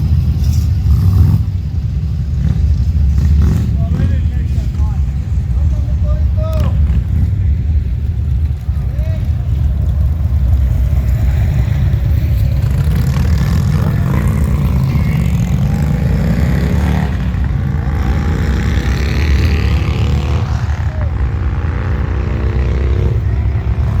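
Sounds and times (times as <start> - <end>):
motorcycle engine rumbling: 0.0 - 24.0.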